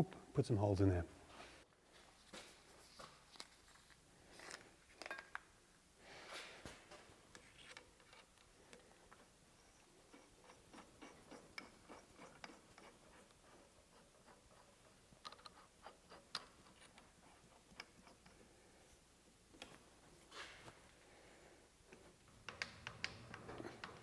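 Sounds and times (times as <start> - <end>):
soft rustle: 1.2 - 5.0
small clicks and taps of tools: 15.2 - 15.6, 19.6 - 19.8, 21.9 - 24.0.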